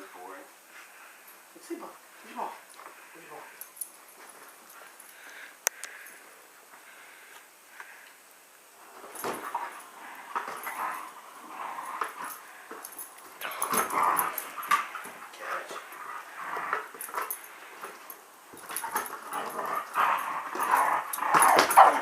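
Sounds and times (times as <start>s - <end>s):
dog scuffling: 8.8s - 22.0s
knocks and rustles: 8.8s - 22.0s.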